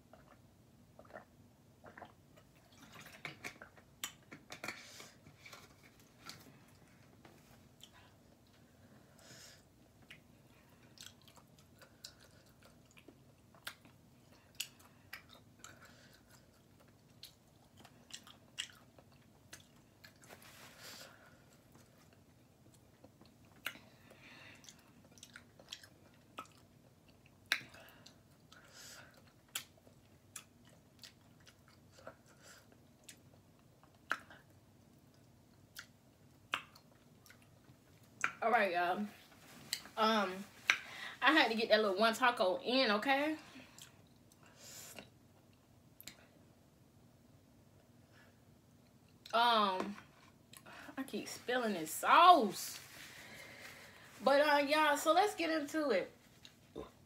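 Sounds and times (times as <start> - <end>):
person chewing with mouth clicks: 0.1 - 0.4, 1.0 - 4.7, 10.0 - 20.3, 21.7 - 23.9, 24.6 - 38.4.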